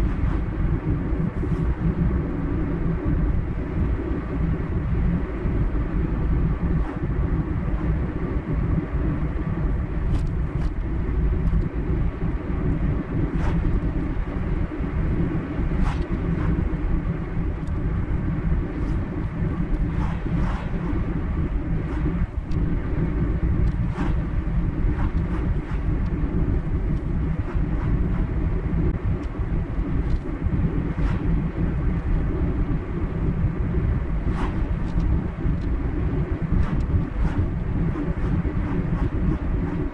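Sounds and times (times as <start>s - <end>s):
car road and engine noise: 0.0s - 39.9s.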